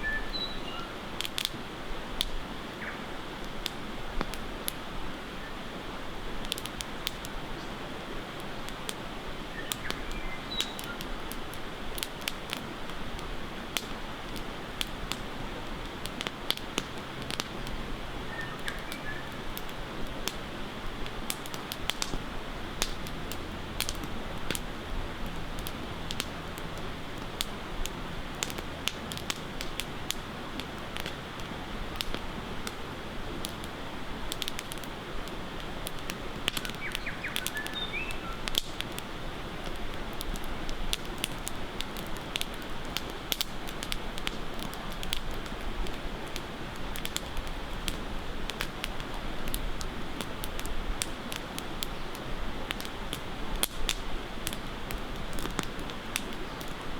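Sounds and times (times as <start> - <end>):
bird chirps: 0.0 - 1.0, 9.5 - 11.0, 18.3 - 19.3, 36.7 - 38.4
campfire crackling and popping: 0.0 - 56.9.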